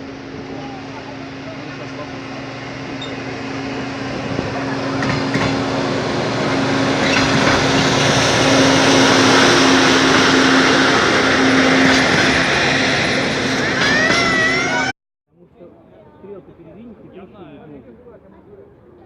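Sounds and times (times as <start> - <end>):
train engine hum: 0.0 - 14.9
train rolling noise: 0.0 - 14.9.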